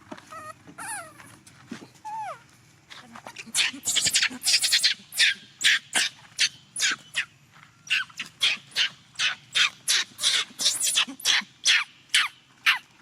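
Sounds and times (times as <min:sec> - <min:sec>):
infant monkey screaming: 0:00.3 - 0:01.2, 0:02.0 - 0:02.4, 0:03.4 - 0:07.3, 0:07.9 - 0:12.9.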